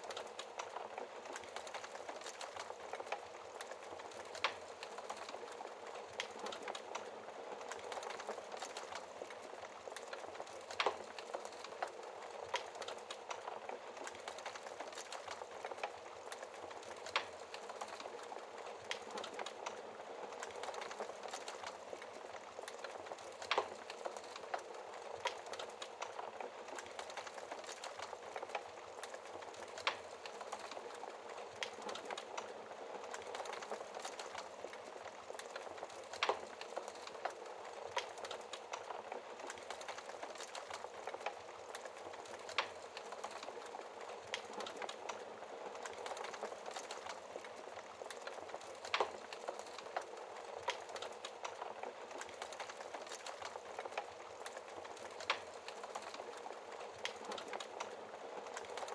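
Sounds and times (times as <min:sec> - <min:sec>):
wood fire crackling: 0:00.0 - 0:58.9
fire pops: 0:07.6 - 0:58.9.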